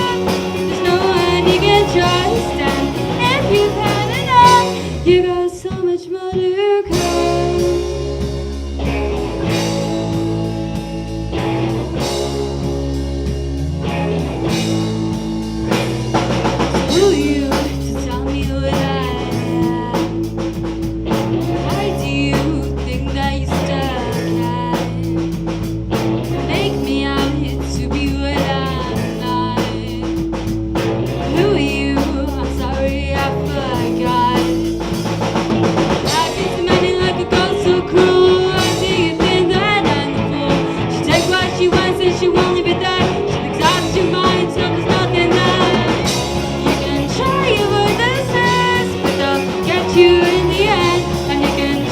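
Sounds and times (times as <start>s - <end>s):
woman singing: 0.0s - 8.2s, 16.8s - 20.6s, 21.4s - 25.4s, 26.3s - 30.4s, 31.2s - 34.9s, 36.0s - 51.9s
live rock band playing: 0.0s - 51.9s.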